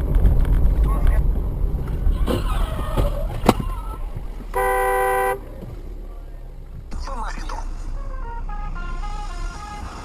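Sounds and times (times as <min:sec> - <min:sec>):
car engine rumble: 0:00.0 - 0:10.0
car horn blast: 0:04.5 - 0:05.5.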